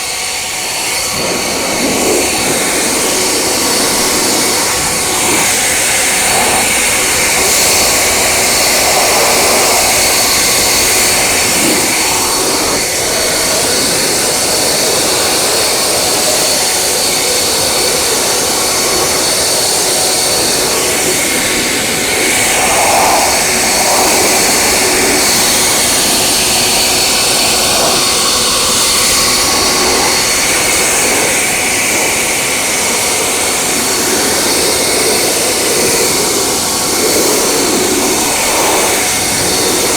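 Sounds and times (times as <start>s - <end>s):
high motor whine: 0.0s - 39.9s
car wash air or spray rushing: 0.1s - 15.4s, 18.6s - 32.4s.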